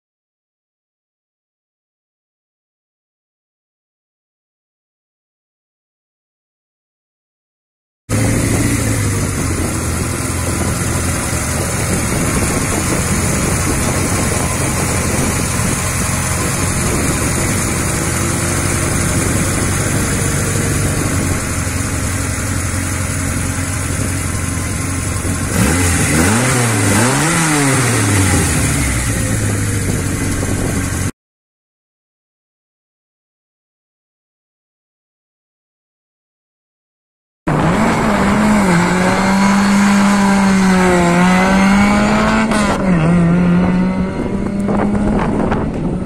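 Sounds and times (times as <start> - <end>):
car engine idling and revving: 8.1 - 31.1, 37.5 - 46.0.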